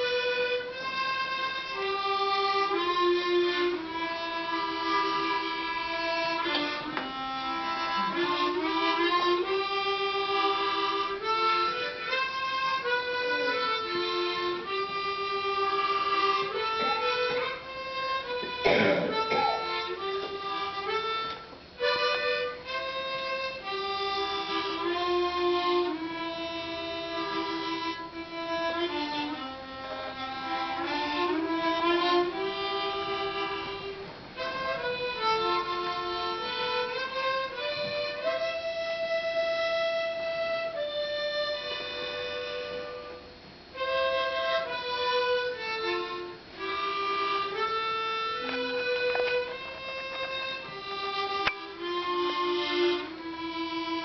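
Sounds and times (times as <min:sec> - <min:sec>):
harmonica playing slow melody: 0:00.0 - 0:54.0.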